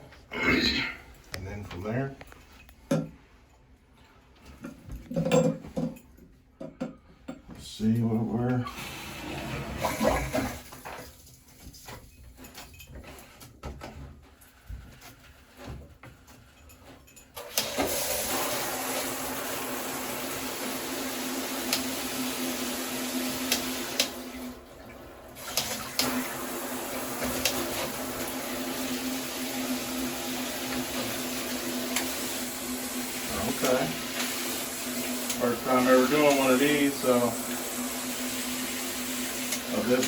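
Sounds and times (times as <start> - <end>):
shower head spraying water: 17.6 - 24.3, 25.4 - 40.0.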